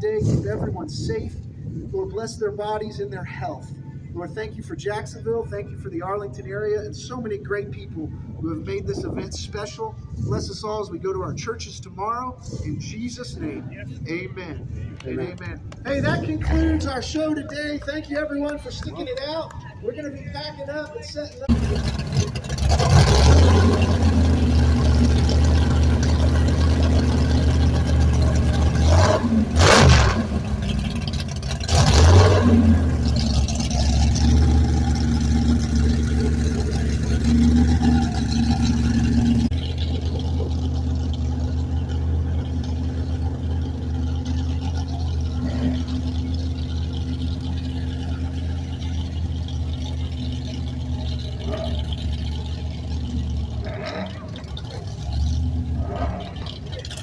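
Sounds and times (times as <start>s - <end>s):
car engine running: 12.8s - 57.0s.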